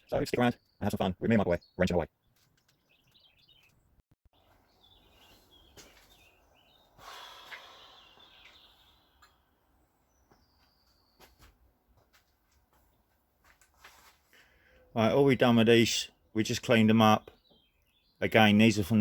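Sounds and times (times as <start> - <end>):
faint bird chirps: 4.4 - 11.5.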